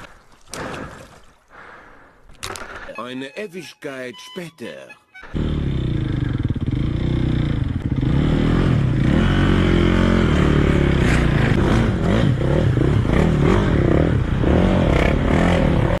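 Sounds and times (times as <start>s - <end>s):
motorcycle engine revving: 5.2s - 16.0s.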